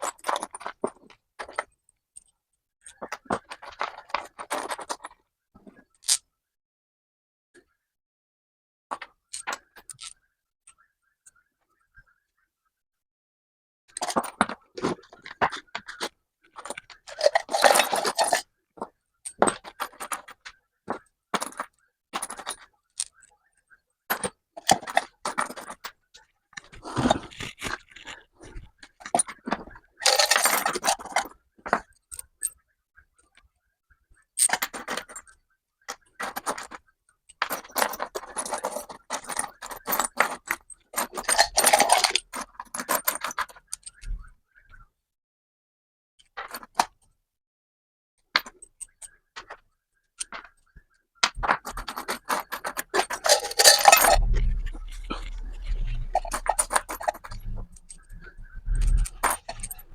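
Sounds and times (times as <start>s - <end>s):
metal tools clinking and scraping: 16.6s - 18.4s, 27.0s - 31.3s, 37.5s - 43.6s, 51.6s - 59.9s.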